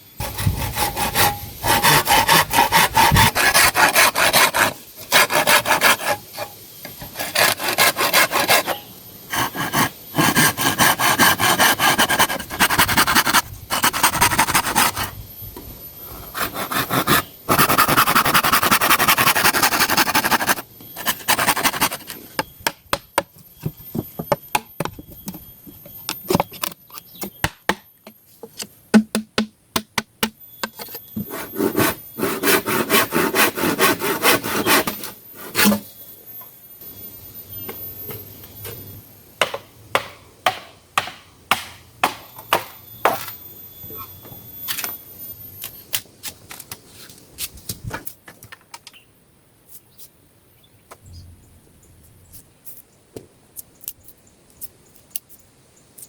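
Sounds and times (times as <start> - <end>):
wood being hand-sawn: 0.2 - 15.1, 16.2 - 22.2, 31.2 - 35.8.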